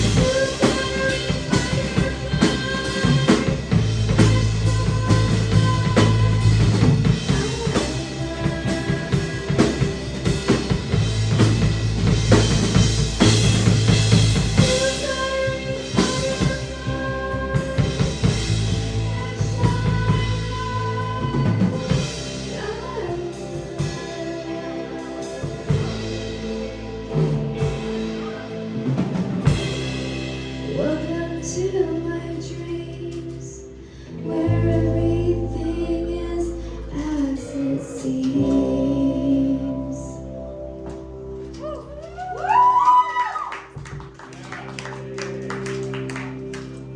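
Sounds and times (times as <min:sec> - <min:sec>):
person singing: 0:00.0 - 0:10.7, 0:14.6 - 0:26.7, 0:30.6 - 0:40.7
drum kit: 0:00.0 - 0:46.9
live rock band playing: 0:00.0 - 0:46.9.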